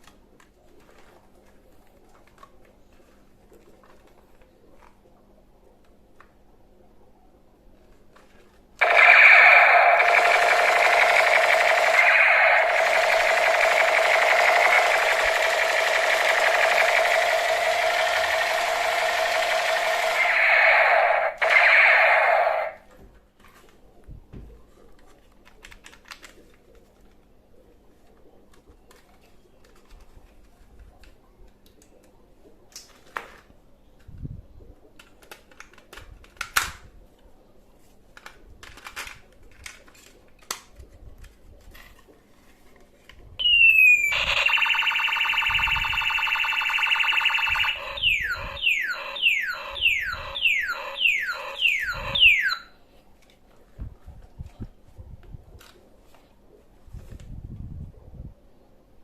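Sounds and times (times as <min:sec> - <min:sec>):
toy gun buzzing tone: 0:08.8 - 0:22.8, 0:43.4 - 0:52.7
toy gun falling chirps: 0:08.8 - 0:22.8, 0:43.4 - 0:52.7.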